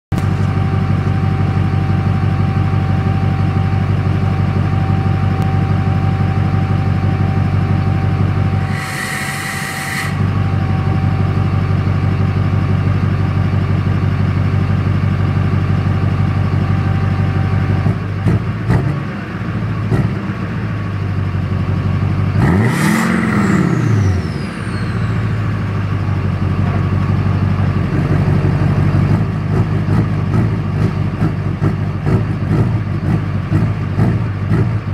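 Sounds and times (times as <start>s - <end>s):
diesel engine idling and revving: 0.1s - 34.9s
turbo whistle: 4.7s - 11.3s, 22.7s - 25.5s
brief hiss: 8.6s - 10.2s.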